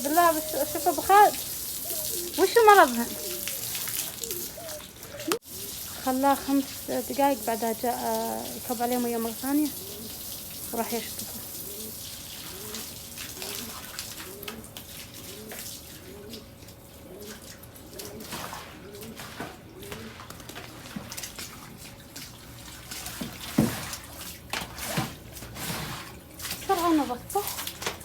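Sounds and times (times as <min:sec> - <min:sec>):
pigeons cooing: 0:00.0 - 0:20.9
water splashing on floor: 0:00.0 - 0:28.0.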